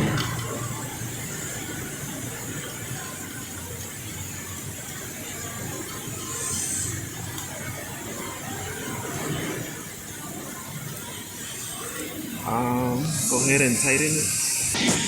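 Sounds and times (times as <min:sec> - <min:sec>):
air compressor running: 0:00.0 - 0:07.7, 0:12.2 - 0:15.0
air hiss: 0:06.2 - 0:07.3, 0:12.4 - 0:15.0.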